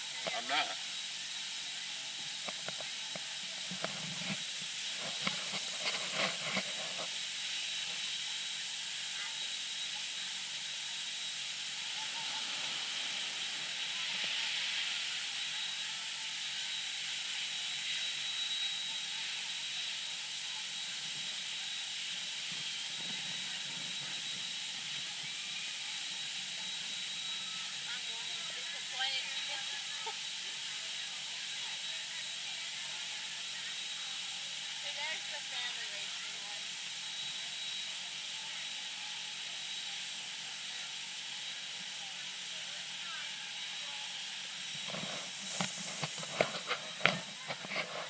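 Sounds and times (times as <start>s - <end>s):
faint voices: 0.0s - 48.0s
steady hiss: 0.0s - 48.0s.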